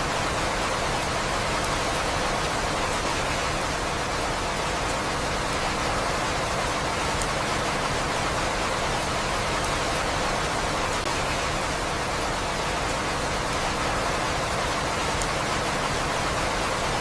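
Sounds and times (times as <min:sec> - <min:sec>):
steady rain hiss: 0:00.0 - 0:17.0.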